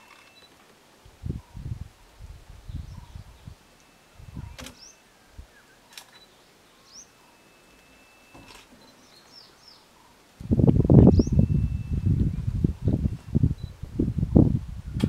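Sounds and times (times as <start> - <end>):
birds chirping: 2.5 - 13.8
thin steady whistle: 6.8 - 8.6, 11.1 - 12.1.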